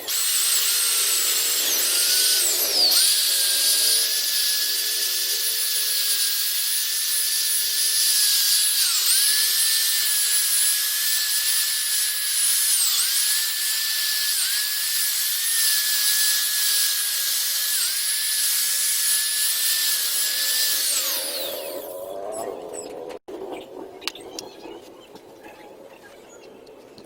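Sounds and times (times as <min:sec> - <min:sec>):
electric buffing tool whining: 0:00.0 - 0:22.2.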